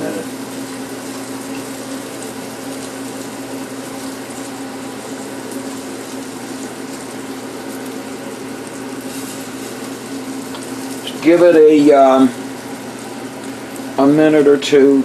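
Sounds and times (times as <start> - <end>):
liver sizzling in fat: 0.0 - 15.0.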